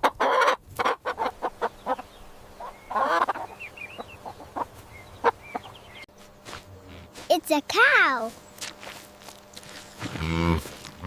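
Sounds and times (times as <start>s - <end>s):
chicken squawk: 0.0s - 5.7s
chickens clucking: 0.0s - 6.1s.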